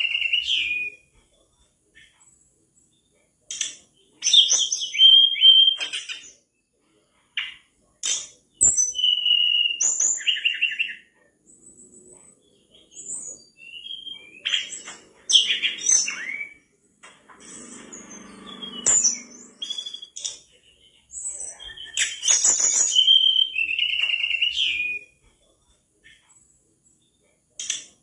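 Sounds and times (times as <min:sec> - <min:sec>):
flycatcher singing: 0:08.2 - 0:16.8, 0:17.4 - 0:25.2.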